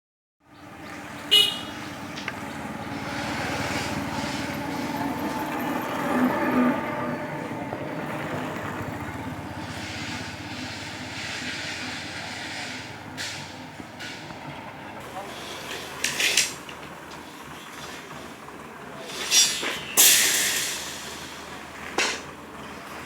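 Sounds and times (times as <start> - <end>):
heavy machinery engine running: 0.6 - 23.0
sharp metallic clank: 19.0 - 22.3.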